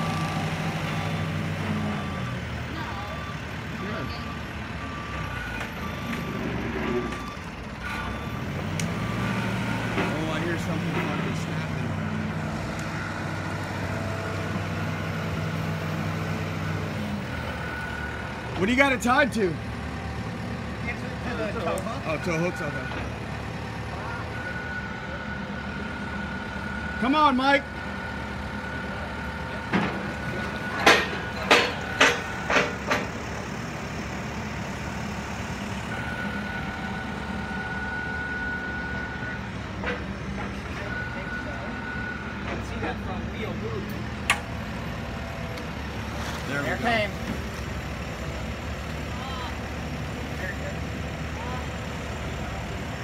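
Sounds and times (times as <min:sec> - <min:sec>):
truck engine running: 0:00.0 - 0:53.0.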